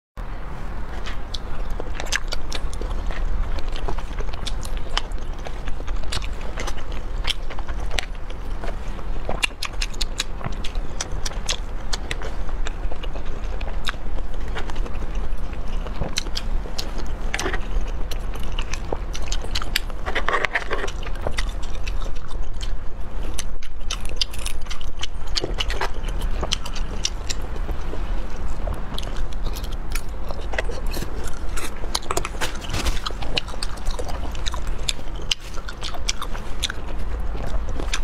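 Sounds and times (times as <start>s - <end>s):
low hum: 0.2s - 38.0s
person chewing and crunching: 0.4s - 38.0s.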